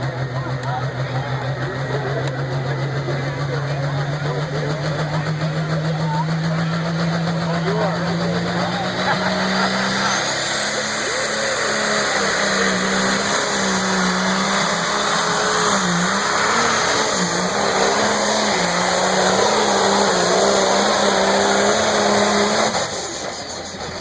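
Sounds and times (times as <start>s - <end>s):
tractor engine running under load: 0.0s - 24.0s.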